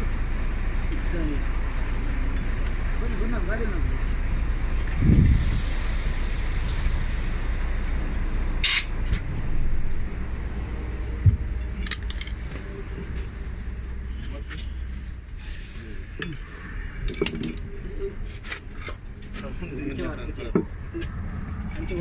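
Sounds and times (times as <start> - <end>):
vehicle engine idling: 0.0 - 22.0
air hiss: 5.2 - 7.6, 8.6 - 8.9, 15.4 - 16.1
low thump: 11.2 - 11.6.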